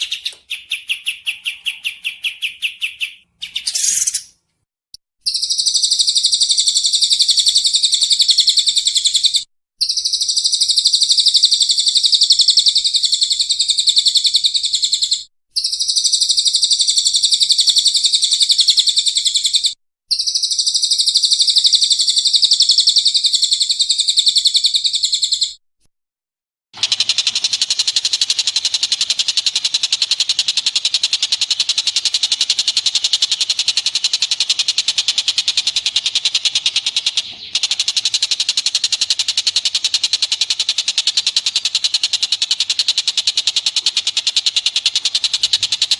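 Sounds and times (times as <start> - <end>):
rapid buzzing bird chatter: 0.0 - 4.3, 5.2 - 25.5, 26.8 - 45.9
bird high trills: 0.0 - 4.4.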